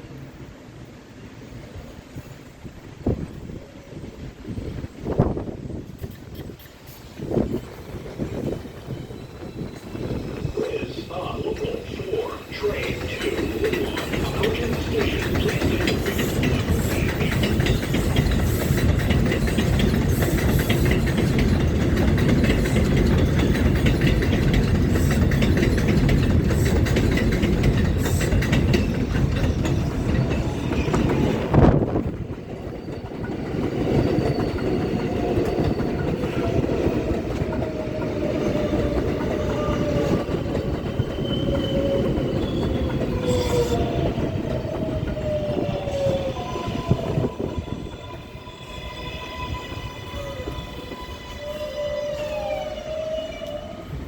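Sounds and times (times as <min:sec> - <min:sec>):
train rumble and wheel clatter: 0:00.0 - 0:54.0
whining train motors: 0:05.2 - 0:54.0.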